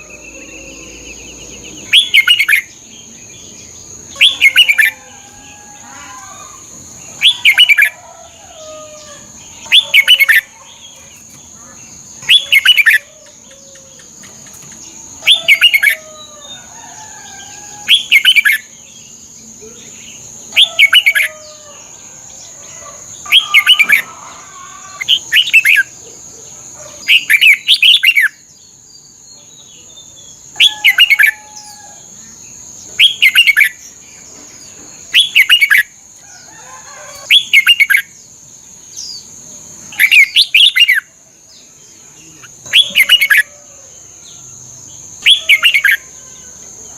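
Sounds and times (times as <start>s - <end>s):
bulbul singing warbled whistles: 0.0s - 2.7s, 35.2s - 35.9s.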